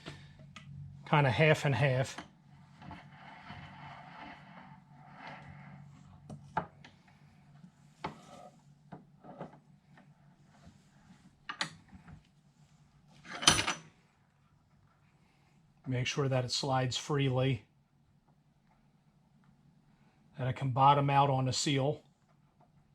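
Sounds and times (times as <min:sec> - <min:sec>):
metal scraping slide: 0:02.6 - 0:06.1.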